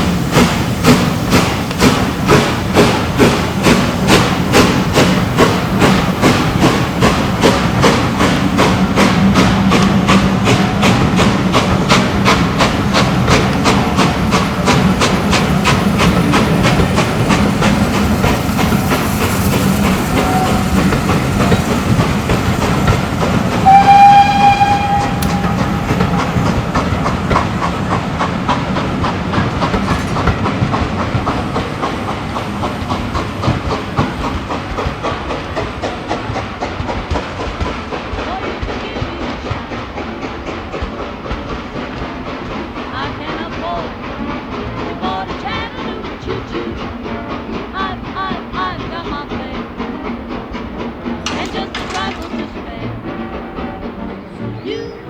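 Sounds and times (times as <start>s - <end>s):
steam locomotive exhaust beats: 0.0s - 55.0s
locomotive whistle blast: 19.8s - 22.0s, 23.5s - 27.2s.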